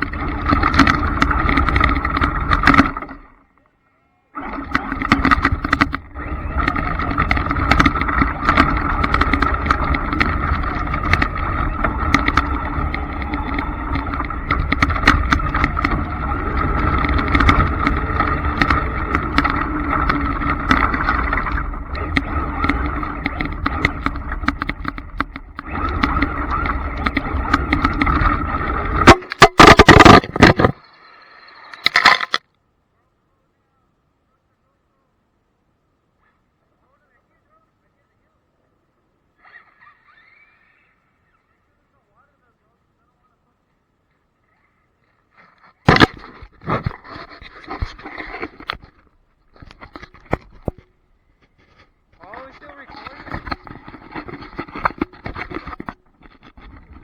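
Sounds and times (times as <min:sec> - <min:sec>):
tyre and ground noise: 0:00.0 - 0:03.7, 0:04.3 - 0:30.9, 0:31.7 - 0:32.4, 0:45.0 - 0:57.0
loud rough motor bursts: 0:04.4 - 0:30.5
rc truck motor whine: 0:04.4 - 0:32.4.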